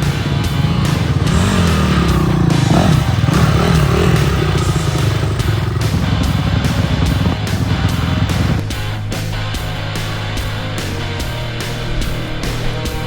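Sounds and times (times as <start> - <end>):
dirt bike engine revving: 0.0 - 8.9.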